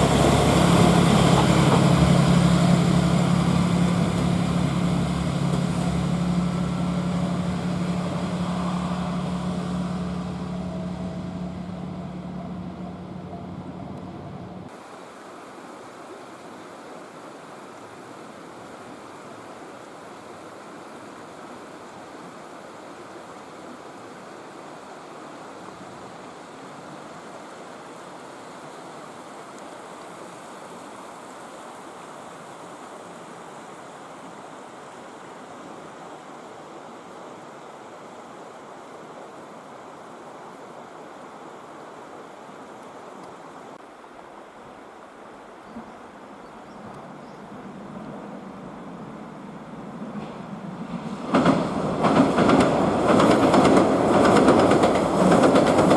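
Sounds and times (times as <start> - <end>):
train low hum: 0.0 - 14.7, 44.3 - 55.9
outdoor rushing hiss: 0.0 - 22.2, 27.3 - 55.9.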